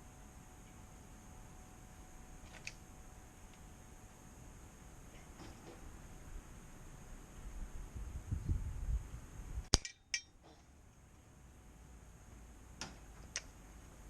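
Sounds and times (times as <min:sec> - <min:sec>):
sharp click: 0:09.6 - 0:10.7.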